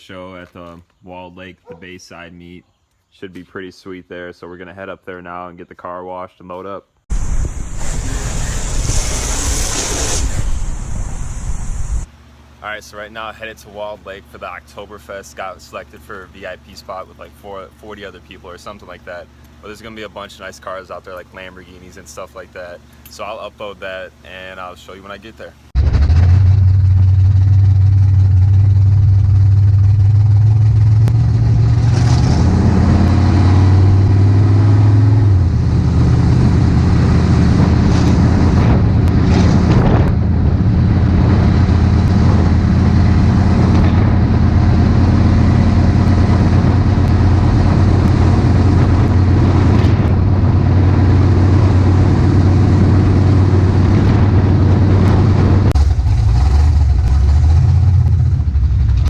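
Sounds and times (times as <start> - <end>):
car engine running: 25.8 - 59.0.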